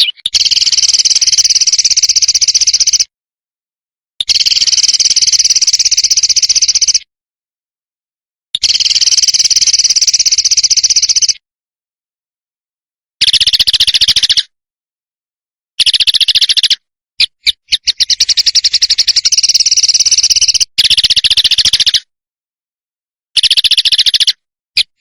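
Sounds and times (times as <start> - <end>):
songbird rattling trill: 0.0 - 3.0, 4.2 - 7.0, 8.6 - 11.4, 13.2 - 14.5, 15.8 - 22.0, 23.4 - 24.4.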